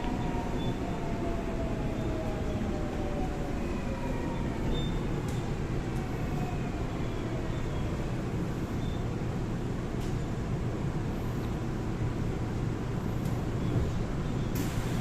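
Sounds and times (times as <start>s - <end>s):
train inverter whine: 0.0s - 15.0s
train wheel rumble: 0.0s - 15.0s.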